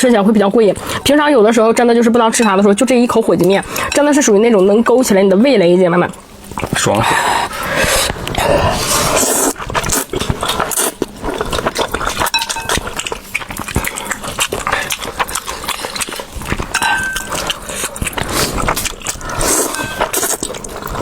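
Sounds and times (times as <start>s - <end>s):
person slurping noodles: 6.9s - 12.2s, 17.3s - 21.0s.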